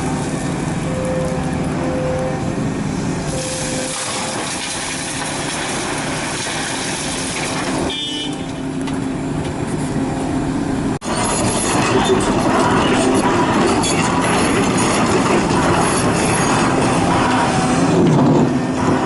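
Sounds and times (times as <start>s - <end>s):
excavator diesel engine: 0.0s - 19.0s.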